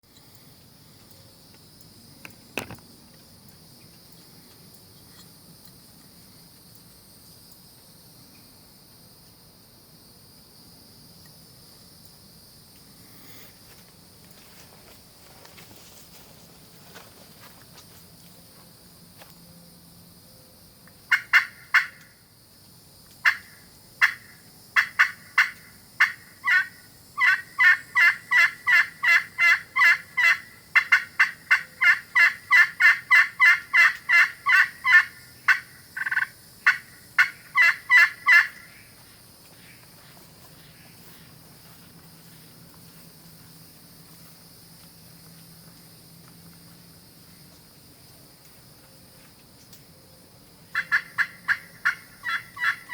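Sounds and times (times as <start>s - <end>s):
turkey call yelps: 21.1s - 22.1s, 23.2s - 38.8s, 50.7s - 52.9s.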